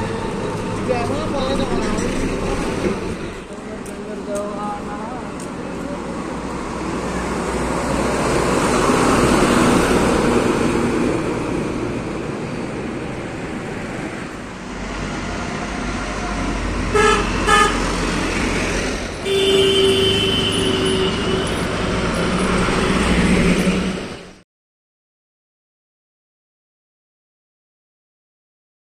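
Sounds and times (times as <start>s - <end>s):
road traffic passing: 0.0s - 24.4s
long horn blast: 16.9s - 18.0s, 19.2s - 22.0s
short horn toots: 19.2s - 21.7s.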